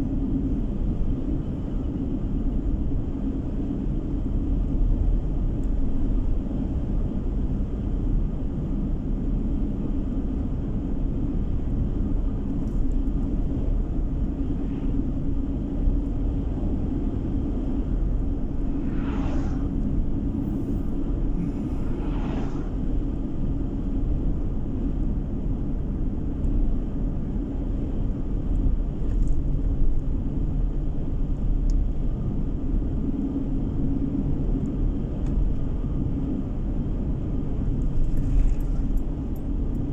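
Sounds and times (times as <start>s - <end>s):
car cabin road rumble: 0.0s - 33.8s, 34.4s - 39.9s
brief swishes: 18.5s - 23.1s.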